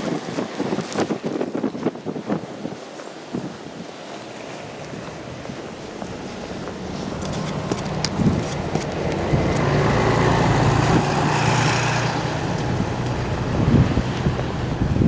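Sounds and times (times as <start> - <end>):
wind buffeting microphone: 0.0 - 15.0
vehicle passing on road: 4.0 - 15.0.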